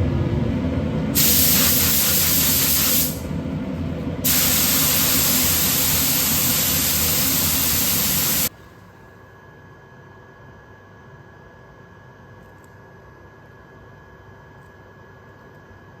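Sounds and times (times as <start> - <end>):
faint hum: 0.0 - 11.9
spray gun hissing: 1.2 - 3.3, 4.2 - 8.5.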